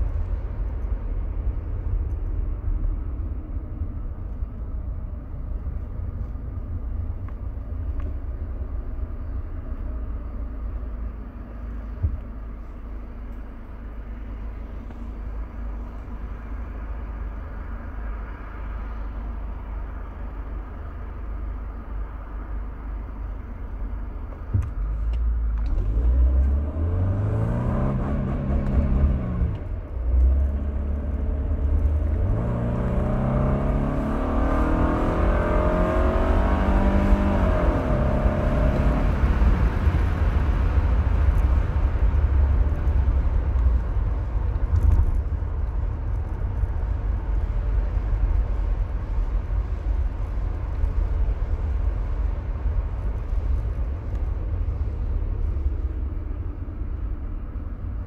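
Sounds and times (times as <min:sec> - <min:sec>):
car engine revving: 0:25.6 - 0:58.0.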